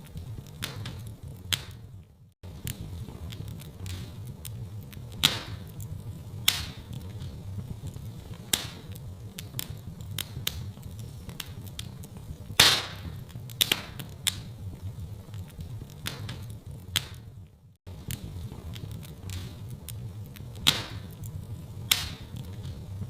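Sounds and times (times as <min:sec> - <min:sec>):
fire crackling and popping: 0:00.0 - 0:23.0
low steady rumble: 0:00.0 - 0:23.0.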